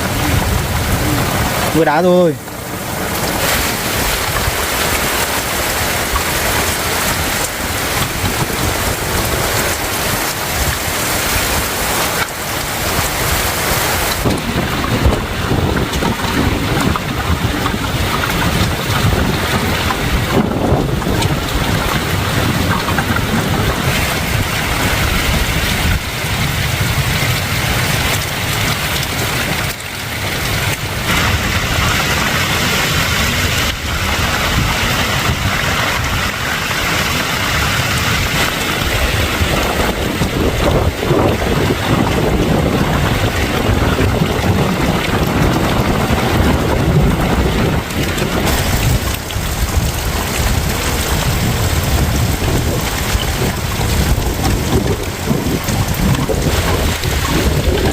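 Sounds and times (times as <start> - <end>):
heavy rain with hail pelting: 0.0 - 57.9.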